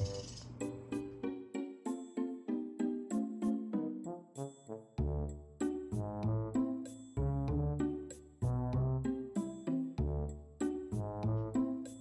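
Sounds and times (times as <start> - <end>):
bouncy instrumental music: 0.0 - 12.0.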